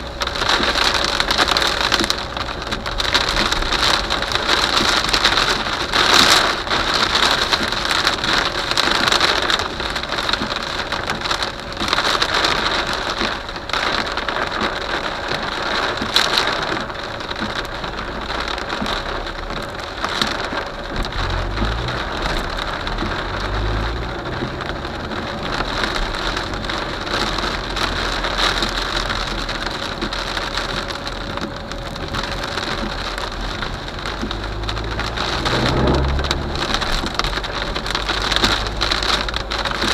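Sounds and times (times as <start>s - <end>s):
heavy rain on hard surface: 0.0s - 39.9s
low rumble of thunder: 17.4s - 39.9s.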